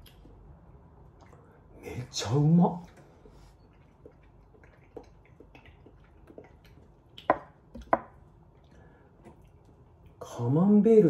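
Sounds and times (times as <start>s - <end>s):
mouth chewing clicks: 3.6s - 7.9s.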